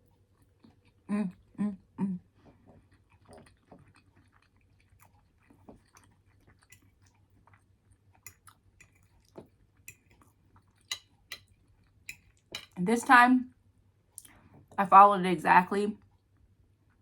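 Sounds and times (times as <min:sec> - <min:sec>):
faint chewing: 0:00.0 - 0:01.6, 0:02.2 - 0:12.8.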